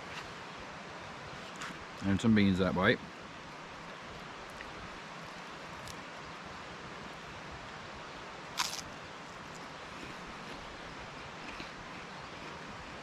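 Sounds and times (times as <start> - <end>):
outdoor background hiss: 0.0 - 13.0
crisp crunch: 8.6 - 8.9.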